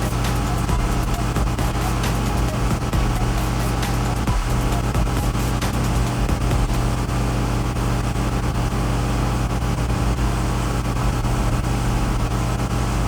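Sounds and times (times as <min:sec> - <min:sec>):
water spray hissing: 0:00.0 - 0:07.0
pressure washer engine humming: 0:00.0 - 0:13.0.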